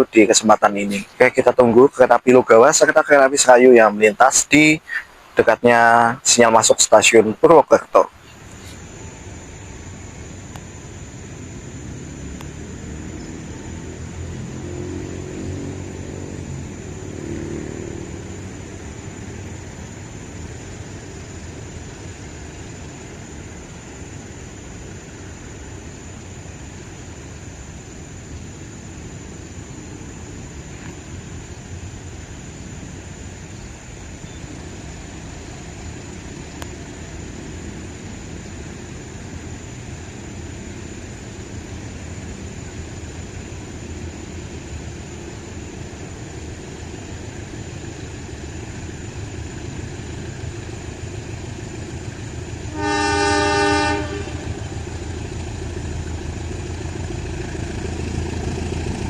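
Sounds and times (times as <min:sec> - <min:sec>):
road traffic rumble: 0:00.0 - 0:59.0
locomotive horn blast: 0:52.6 - 0:54.9.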